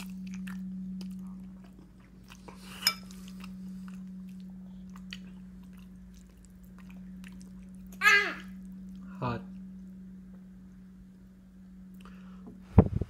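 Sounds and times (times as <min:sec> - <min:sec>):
toddler chewing: 0:00.0 - 0:09.1
steady low hum: 0:00.0 - 0:13.0.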